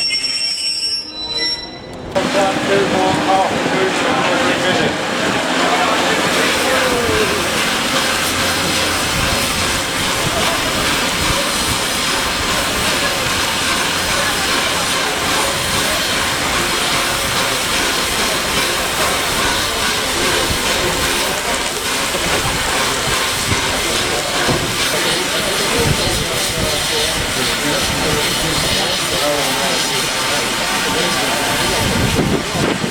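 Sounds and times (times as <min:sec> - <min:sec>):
steam locomotive hissing steam: 0:02.2 - 0:32.9.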